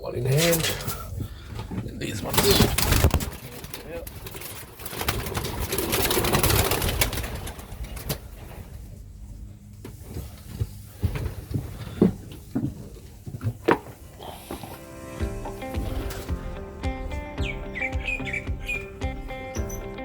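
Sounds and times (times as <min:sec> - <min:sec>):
pigeon wings flapping: 0:02.3 - 0:08.6
pigeons cooing: 0:14.1 - 0:20.0.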